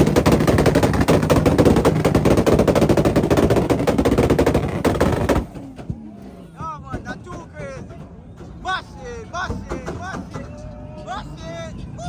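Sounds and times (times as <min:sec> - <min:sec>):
car engine at rev limiter: 0:00.0 - 0:08.6
exhaust popping bangs: 0:00.0 - 0:10.6.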